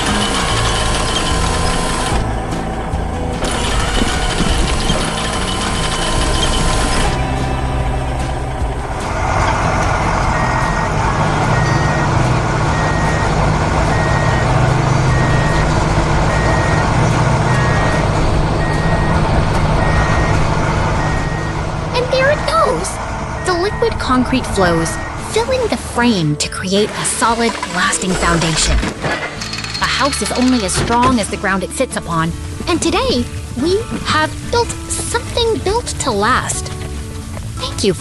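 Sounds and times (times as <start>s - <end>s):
heavy truck engine running: 0.0s - 38.0s
reversing alarm beeping: 10.3s - 14.5s, 15.1s - 15.7s, 16.3s - 19.2s, 19.8s - 20.4s, 21.0s - 21.6s, 23.4s - 25.3s.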